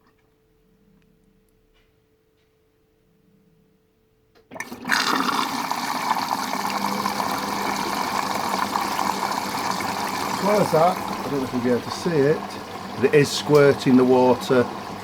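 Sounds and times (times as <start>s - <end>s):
washing machine hum: 4.5s - 15.0s
water rushing into washing machine: 4.5s - 15.0s.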